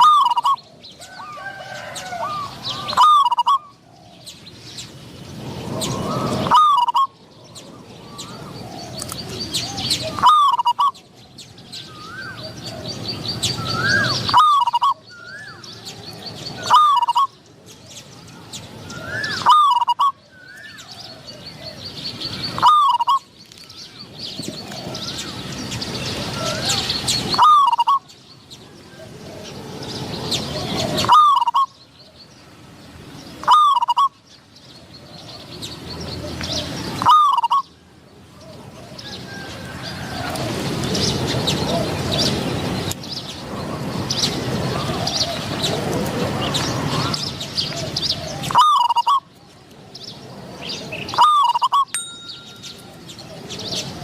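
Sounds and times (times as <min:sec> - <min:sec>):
doves cooing: 0:00.0 - 0:04.4, 0:05.4 - 0:11.1, 0:11.7 - 0:18.0, 0:18.7 - 0:23.3, 0:24.4 - 0:28.1, 0:28.9 - 0:32.2, 0:33.4 - 0:34.2, 0:36.2 - 0:37.7, 0:38.4 - 0:42.8, 0:43.5 - 0:49.3.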